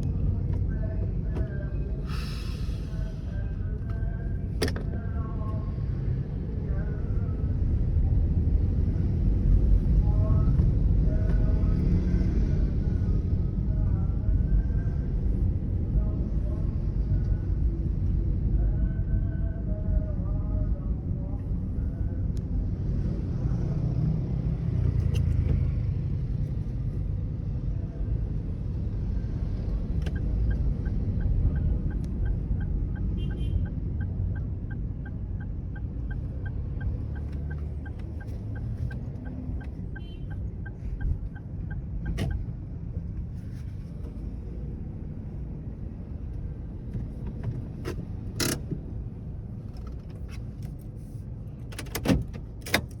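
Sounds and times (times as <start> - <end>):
car engine and tyre rumble: 0.0 - 53.0
turn signal ticking: 29.8 - 42.6.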